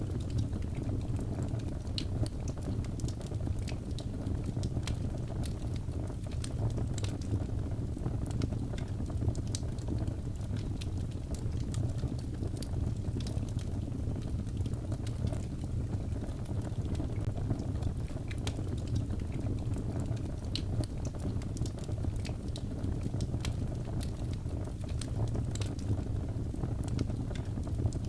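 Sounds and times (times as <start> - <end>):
fire crackling in a fireplace: 0.0 - 28.0.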